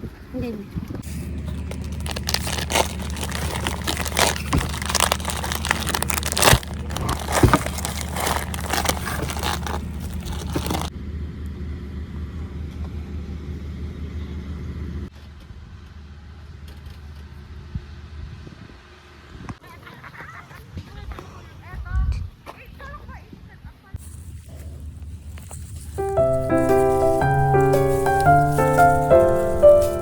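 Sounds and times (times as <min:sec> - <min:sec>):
crunching and rattling knocks: 0:01.5 - 0:10.9.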